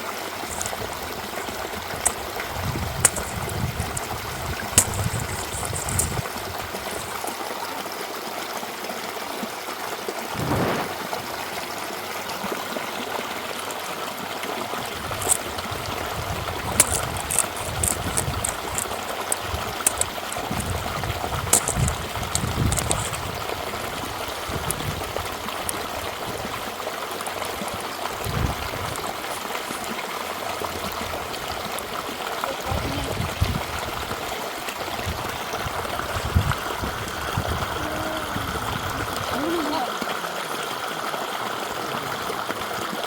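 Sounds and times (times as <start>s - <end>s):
stream running: 0.0s - 43.0s
low thumps: 10.3s - 11.4s.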